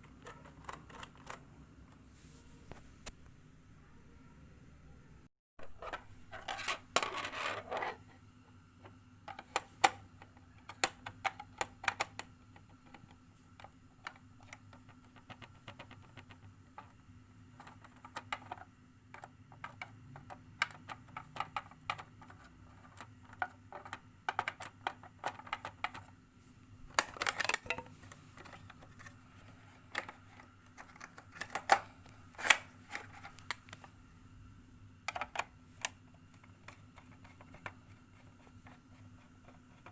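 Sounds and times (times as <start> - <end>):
hands and tools clicking and scraping: 0.0 - 1.5, 8.8 - 17.0, 17.6 - 26.2, 26.9 - 33.9, 35.1 - 39.9
faint steady hum: 0.0 - 39.9.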